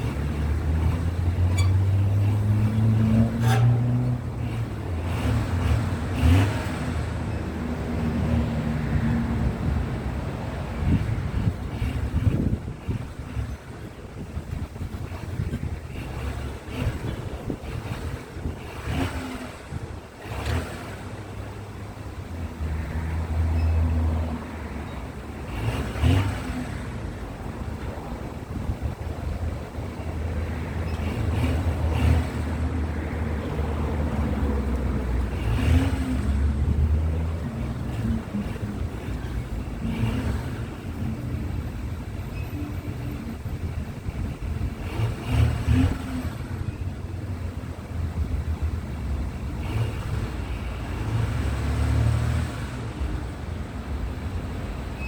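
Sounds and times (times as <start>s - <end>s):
diesel engine idling: 0.0s - 51.5s
wind noise on microphone: 8.9s - 20.8s, 27.5s - 48.8s.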